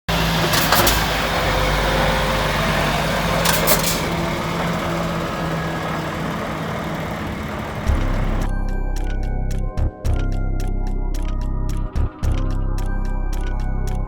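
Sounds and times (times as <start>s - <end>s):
heavy truck engine humming: 0.1s - 8.5s.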